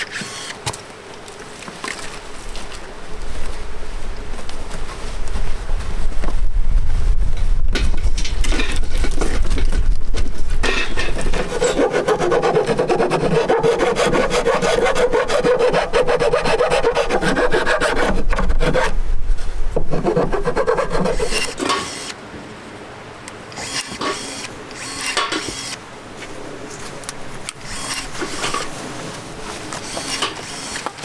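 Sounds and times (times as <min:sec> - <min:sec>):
hand tool rasping wood: 0:10.6 - 0:19.0, 0:19.8 - 0:22.1.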